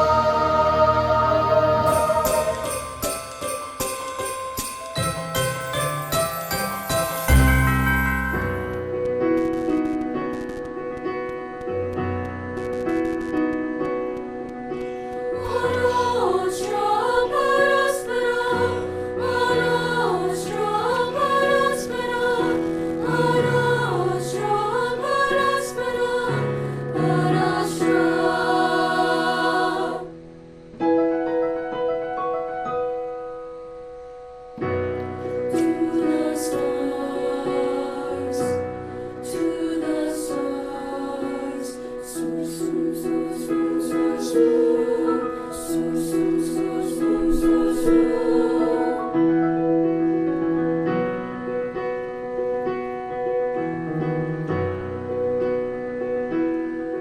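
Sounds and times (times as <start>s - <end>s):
choir singing with accompaniment: 0.0s - 8.9s, 15.0s - 30.3s, 35.1s - 51.0s.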